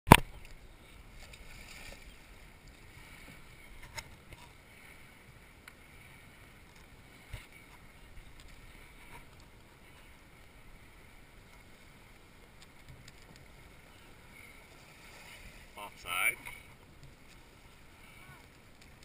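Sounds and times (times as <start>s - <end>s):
faint water lapping: 0.2s - 19.0s.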